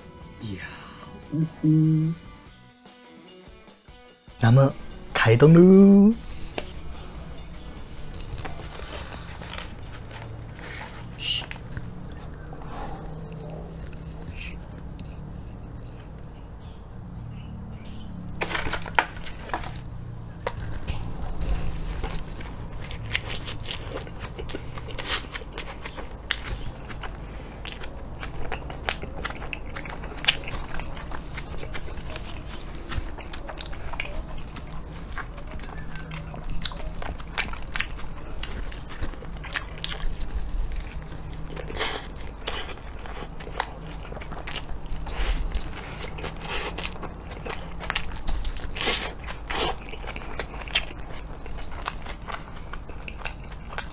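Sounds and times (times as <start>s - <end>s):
chewing with wet mouth clicks: 9.6s - 16.8s, 19.0s - 53.9s.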